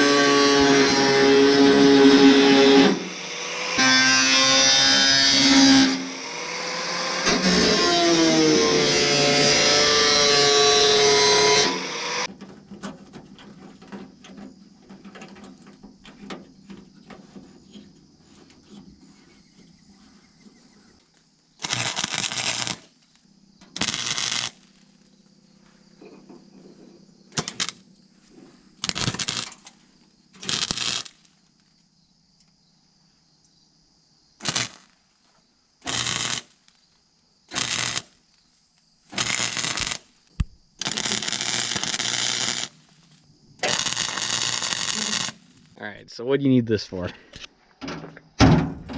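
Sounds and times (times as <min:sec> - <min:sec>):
welder bursts: 0:00.0 - 0:12.3, 0:21.6 - 0:22.9, 0:23.7 - 0:24.7, 0:27.3 - 0:27.8, 0:28.8 - 0:29.6, 0:30.4 - 0:31.3, 0:34.4 - 0:35.0, 0:35.8 - 0:36.7, 0:37.5 - 0:38.2, 0:39.1 - 0:45.8
handling knocks and rustle: 0:12.3 - 0:21.3.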